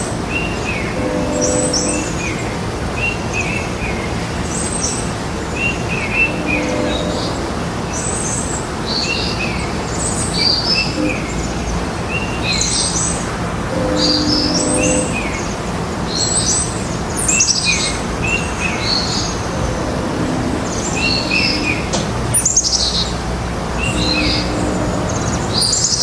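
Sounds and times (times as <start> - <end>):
brief low tone: 6.2 - 7.5, 19.5 - 22.2, 23.8 - 25.6.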